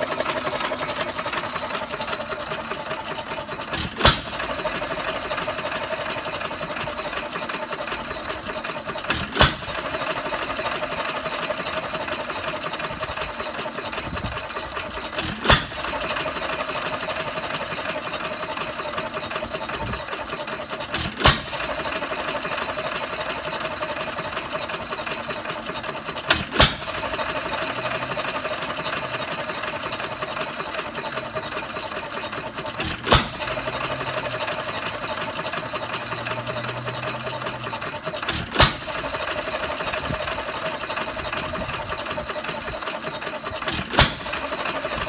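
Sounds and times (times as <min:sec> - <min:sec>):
engine rhythmic clatter: 0:00.0 - 0:45.0
engine firing pops: 0:03.7 - 0:07.4, 0:08.1 - 0:11.5, 0:15.0 - 0:16.9, 0:20.8 - 0:23.1, 0:26.2 - 0:28.8, 0:32.7 - 0:35.1, 0:37.4 - 0:40.7, 0:43.6 - 0:45.0.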